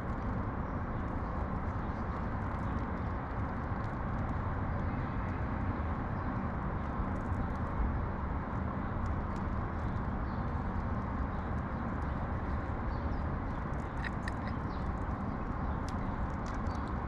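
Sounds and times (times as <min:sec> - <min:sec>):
low urban rumble: 0:00.0 - 0:17.0
faint light ticks: 0:07.1 - 0:17.0.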